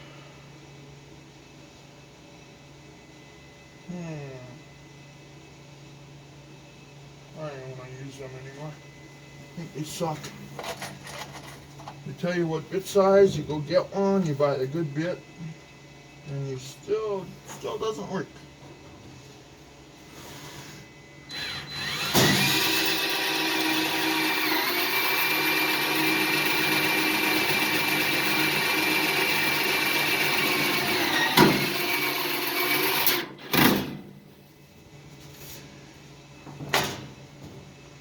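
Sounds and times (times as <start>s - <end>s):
power drill running: 21.3s - 33.8s.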